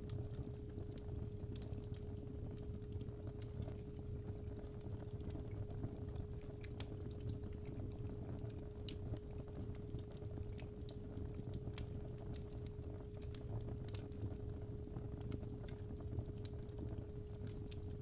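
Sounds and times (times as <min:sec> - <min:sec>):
fire crackling and popping: 0:00.0 - 0:18.0.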